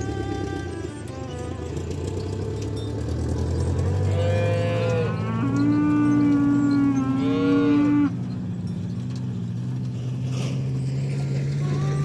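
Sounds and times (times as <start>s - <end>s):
cattle mooing: 3.4s - 8.4s, 11.6s - 12.0s
higher-pitched animal call: 4.0s - 8.2s.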